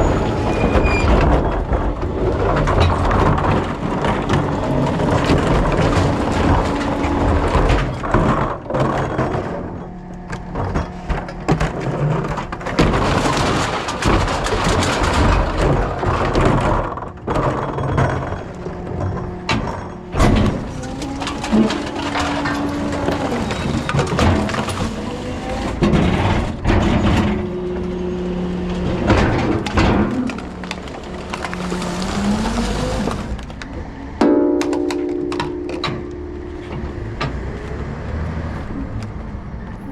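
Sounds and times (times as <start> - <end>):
recyclables crunching and clattering: 0.0 - 39.9
truck engine running: 18.3 - 39.9
sharp knocks: 34.2 - 37.8.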